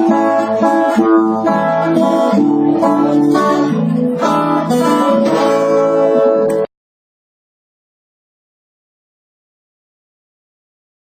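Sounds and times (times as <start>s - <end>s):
acoustic guitar strumming chords: 0.0s - 6.7s.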